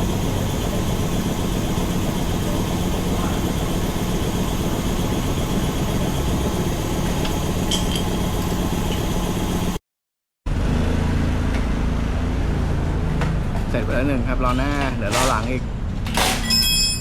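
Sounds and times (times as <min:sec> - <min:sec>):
engine idling: 0:00.0 - 0:09.8.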